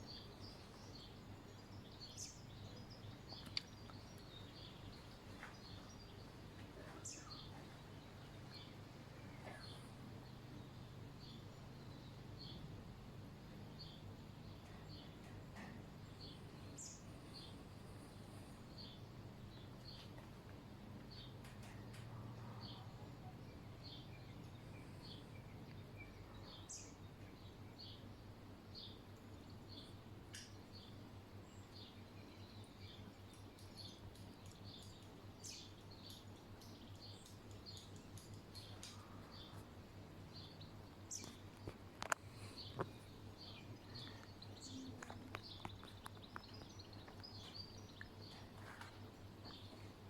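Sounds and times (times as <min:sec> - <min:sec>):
faint bird chirps: 0:00.0 - 0:12.6, 0:29.3 - 0:50.0
steady low hum: 0:00.0 - 0:50.0.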